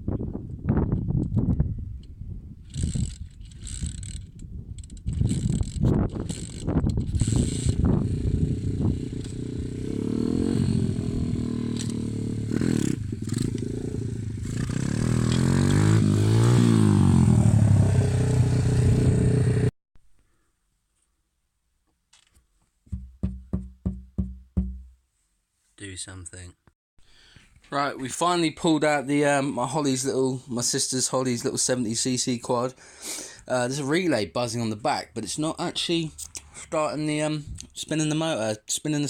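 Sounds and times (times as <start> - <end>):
motorbike engine revving: 6.2 - 19.7.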